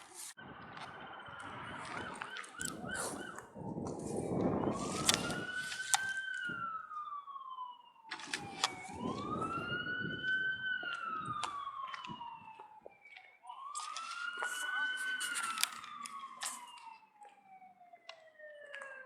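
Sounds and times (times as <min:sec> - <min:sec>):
emergency vehicle siren wailing: 0:00.2 - 0:19.0.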